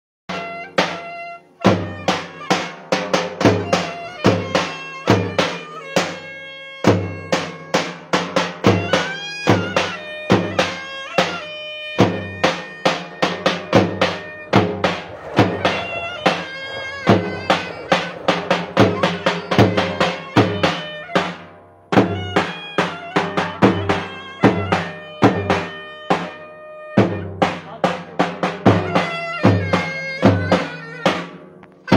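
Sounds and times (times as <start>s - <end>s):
reedy wind instrument melody: 0.3s - 8.0s, 8.7s - 27.2s
big drum beating: 12.0s - 25.5s.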